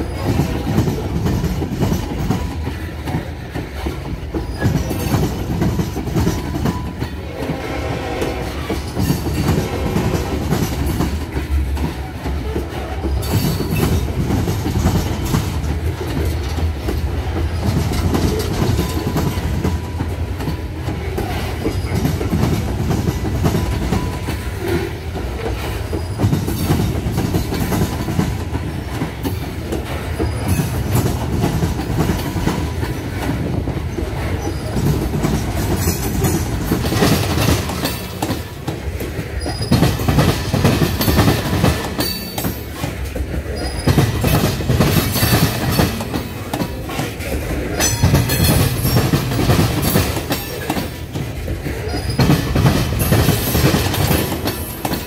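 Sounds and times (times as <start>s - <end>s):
train wheels rumbling and clacking: 0.0s - 55.0s
wheel squeals: 39.4s - 40.0s, 51.8s - 52.5s.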